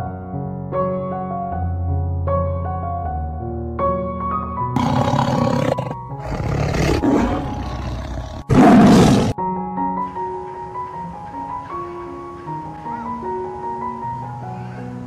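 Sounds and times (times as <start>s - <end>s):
soft piano music: 0.0s - 6.2s, 7.0s - 15.0s
rough animal calls: 4.8s - 9.4s.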